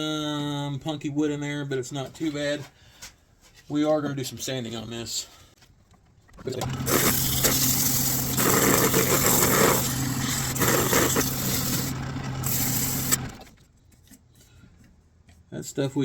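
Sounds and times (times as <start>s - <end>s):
wood lathe motor hum: 6.6s - 13.5s
sandpaper hissing on spinning wood: 6.8s - 13.3s.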